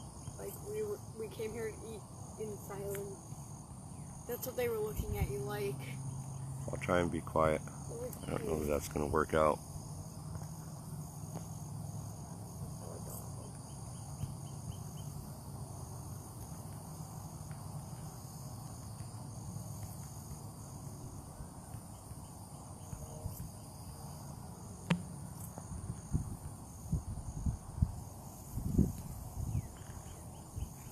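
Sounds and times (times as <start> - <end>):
insects chirping: 0.0 - 30.9.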